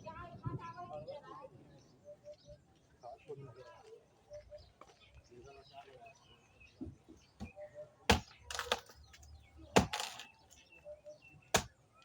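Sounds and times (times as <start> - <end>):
blade chopping wood: 7.4 - 9.0, 9.7 - 10.3, 11.5 - 11.8.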